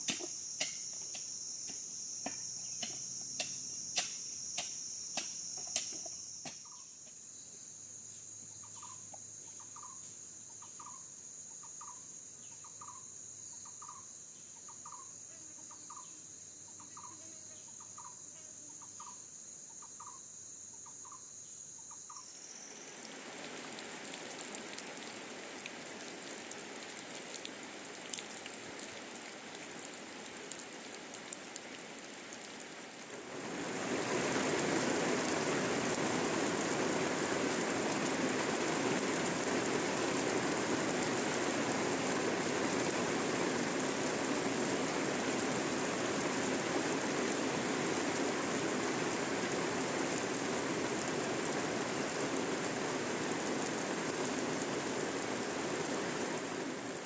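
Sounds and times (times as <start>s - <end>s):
steady rain: 0.0s - 7.2s, 22.2s - 57.0s
crickets trilling: 0.0s - 57.0s.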